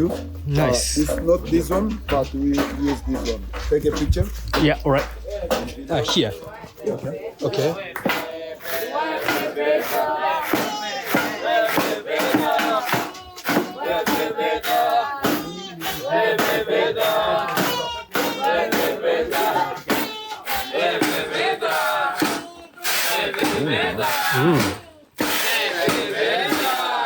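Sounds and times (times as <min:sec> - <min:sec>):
group chanting: 0:00.0 - 0:27.0
wooden pestle pounding in mortar: 0:09.2 - 0:22.4.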